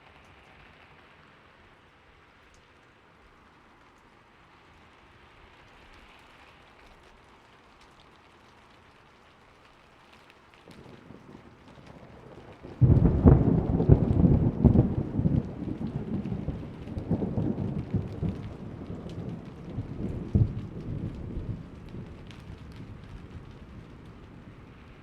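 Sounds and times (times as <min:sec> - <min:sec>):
steady rain: 0:00.0 - 0:25.0
thunder rumbling: 0:10.7 - 0:25.0.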